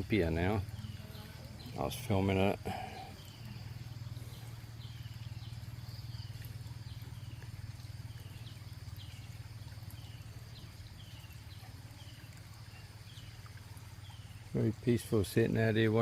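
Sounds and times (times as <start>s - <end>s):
steady low hum: 0.0s - 11.5s
small bird chirping: 0.1s - 14.6s.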